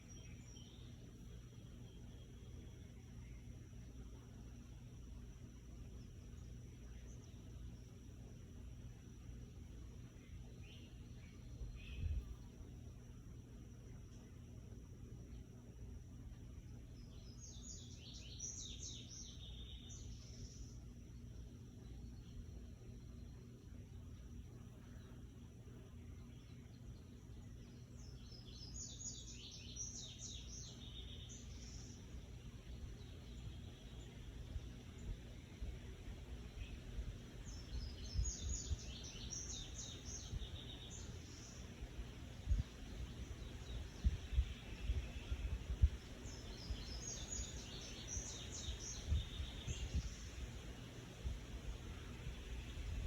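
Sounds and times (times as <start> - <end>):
bird chirping: 0.0 - 4.7, 16.7 - 53.0
low steady hum: 0.0 - 53.0.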